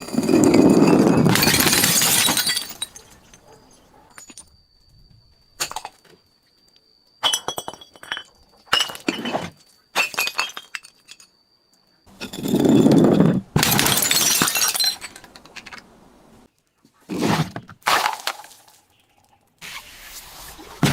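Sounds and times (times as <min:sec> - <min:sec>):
glass bottles shattering: 0:00.1 - 0:03.5, 0:07.2 - 0:11.3, 0:12.2 - 0:15.4
glass cracking and clinking: 0:00.2 - 0:04.5, 0:10.0 - 0:11.3, 0:12.2 - 0:15.8
thin steady high tone: 0:10.6 - 0:12.2.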